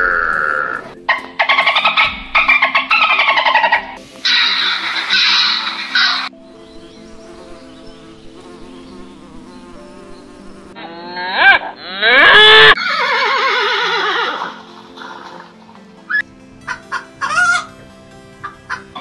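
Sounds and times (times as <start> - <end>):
honeybees buzzing: 3.8 - 12.5
horse whinnying: 10.9 - 15.4.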